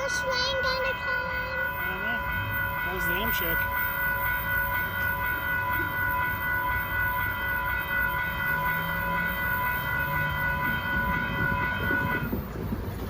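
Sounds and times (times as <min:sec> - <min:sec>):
crossing warning bell ringing: 0:00.0 - 0:13.0.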